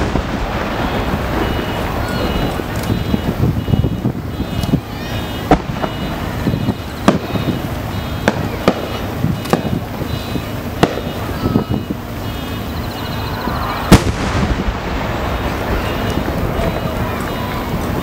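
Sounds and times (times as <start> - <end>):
firework shells bursting: 0.0 - 18.0.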